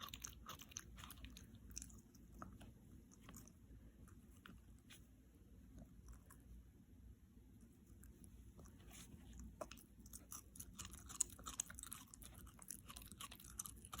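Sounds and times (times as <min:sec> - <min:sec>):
dog chewing crunchy food: 0:00.0 - 0:04.2, 0:09.3 - 0:14.0.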